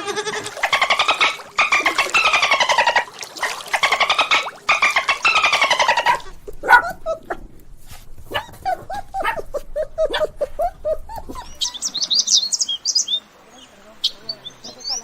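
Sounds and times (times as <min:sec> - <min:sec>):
goat bleating: 0:00.0 - 0:00.7, 0:06.0 - 0:07.0.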